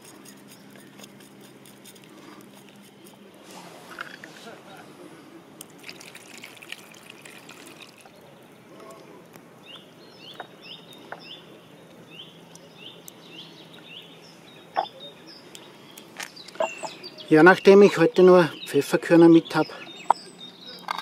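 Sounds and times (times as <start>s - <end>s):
running river water: 5.7s - 9.2s
bird chirping: 9.6s - 21.0s.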